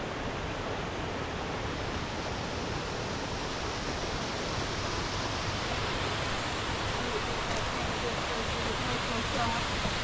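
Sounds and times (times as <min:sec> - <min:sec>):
waterfall rushing: 0:02.1 - 0:10.0.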